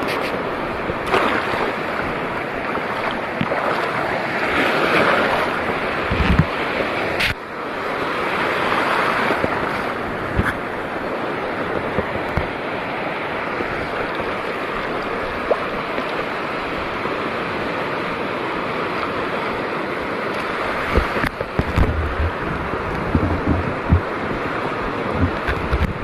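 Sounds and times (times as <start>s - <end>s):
wind buffeting microphone: 0.0s - 7.4s, 8.7s - 12.8s, 20.6s - 26.0s
seawater sloshing: 0.0s - 17.2s, 20.3s - 26.0s
dull knocks: 23.1s - 24.1s.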